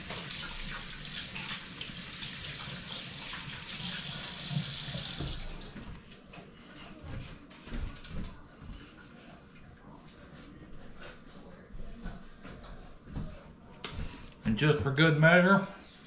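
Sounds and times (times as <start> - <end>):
tap running into sink: 0.0 - 5.6
hands washing under water: 0.0 - 5.7.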